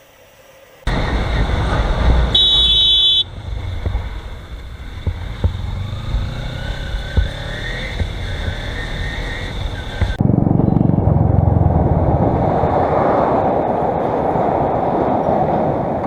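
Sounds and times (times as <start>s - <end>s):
wind: 0.0s - 16.0s
road noise in traffic: 0.8s - 16.0s
engine rumble: 0.9s - 16.0s
vehicle horn honking: 2.2s - 3.4s.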